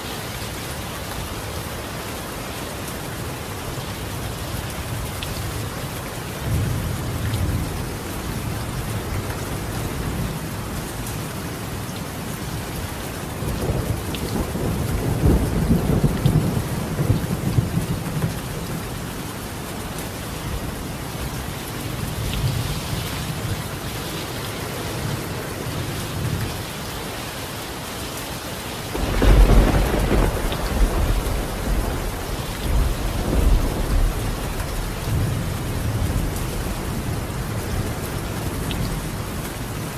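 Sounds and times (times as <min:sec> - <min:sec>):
rain on a tiled roof: 0:00.0 - 0:39.9
rolling thunder: 0:13.6 - 0:18.6, 0:28.9 - 0:38.0
thunder clap: 0:28.9 - 0:36.7.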